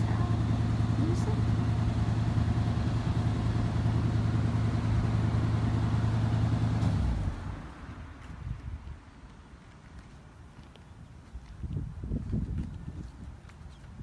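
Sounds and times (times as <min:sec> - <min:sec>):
vehicle engine droning: 0:00.0 - 0:10.4.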